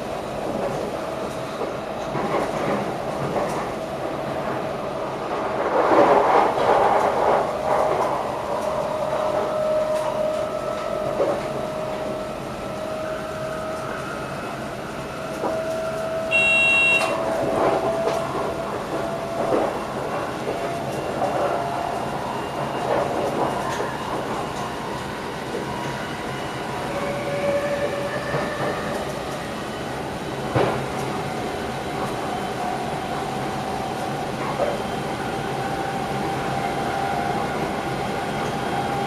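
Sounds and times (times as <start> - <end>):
train rolling rumble: 0.0 - 16.4, 17.0 - 39.0
short electronic beep: 16.3 - 17.2.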